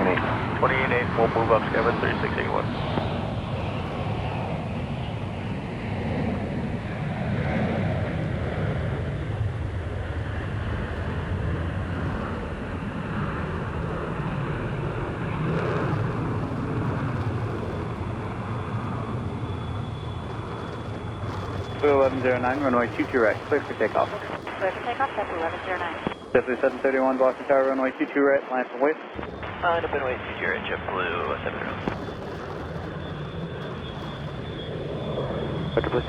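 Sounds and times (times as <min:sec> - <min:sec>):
jet engine noise: 0:00.0 - 0:36.0
faint high whine: 0:08.8 - 0:36.0.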